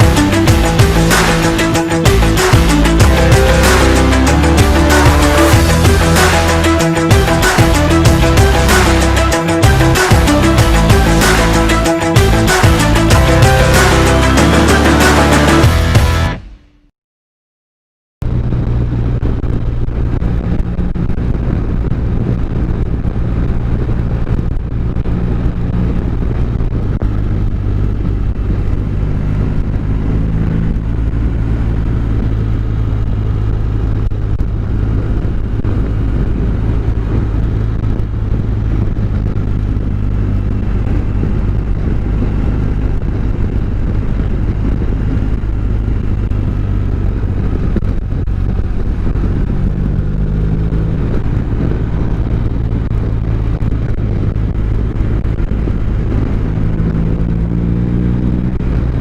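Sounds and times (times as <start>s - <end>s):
motorcycle engine running: 0.0s - 16.5s, 18.2s - 59.0s
wind and road noise: 0.0s - 16.6s, 18.2s - 59.0s.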